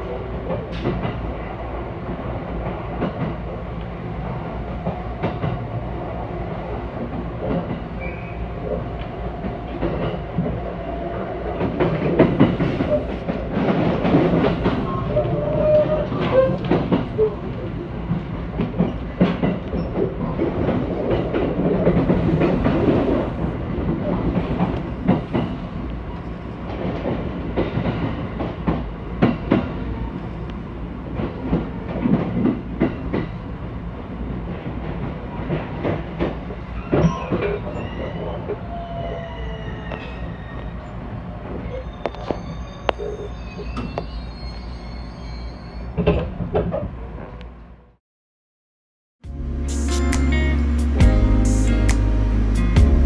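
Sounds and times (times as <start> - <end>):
train rumbling: 0.0 - 48.0, 49.3 - 53.0
wheels clicking over rail joints: 11.5 - 29.8
high wheel squeals: 36.8 - 41.0, 41.6 - 46.0.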